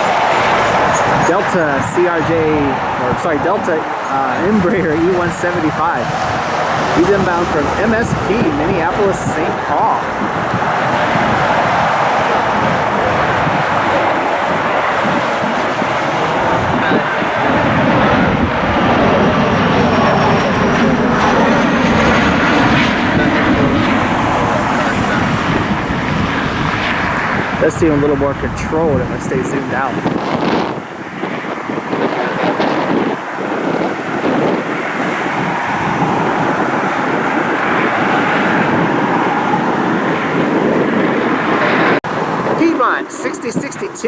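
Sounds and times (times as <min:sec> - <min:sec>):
distant jet engines running: 0:00.0 - 0:44.0
wind buffeting microphone: 0:00.0 - 0:44.0.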